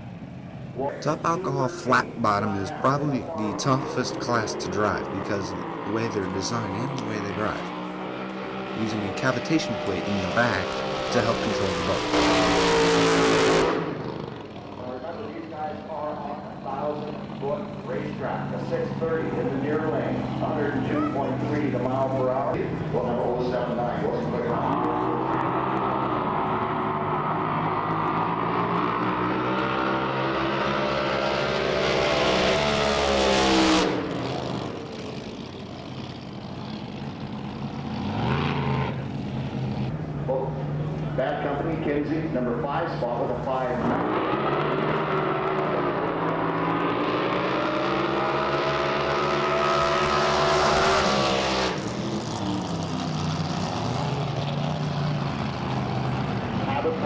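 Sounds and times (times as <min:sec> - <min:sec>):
quieter engine: 0:00.0 - 0:57.0
engine revving: 0:00.9 - 0:42.0, 0:42.6 - 0:57.0
racing boat engine running hard: 0:44.0 - 0:57.0.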